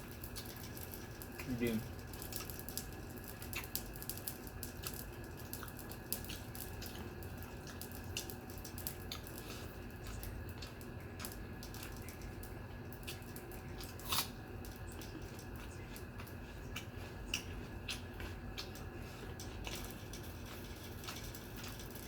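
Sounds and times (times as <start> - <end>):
mouth smacking while chewing: 4.6 - 21.8.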